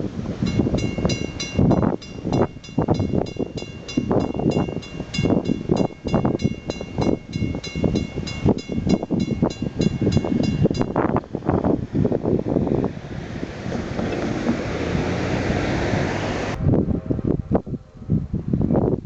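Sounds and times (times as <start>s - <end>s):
wind buffeting microphone: 0.0s - 19.0s
railroad crossing bell ringing: 0.4s - 11.8s.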